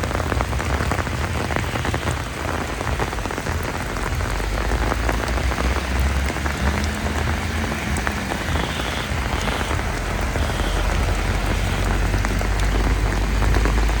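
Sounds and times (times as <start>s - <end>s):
heavy rain on hard surfaces: 0.0s - 14.0s
raindrops splashing: 0.0s - 14.0s.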